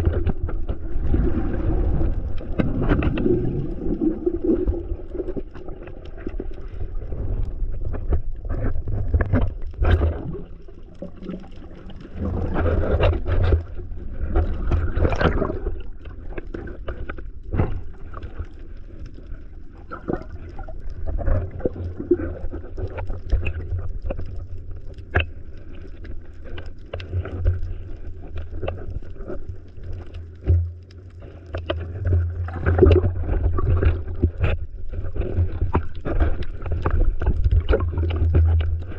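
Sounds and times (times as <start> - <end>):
water sloshing and gurgling: 0.0 - 38.9
small clicks and knocks: 28.3 - 34.6.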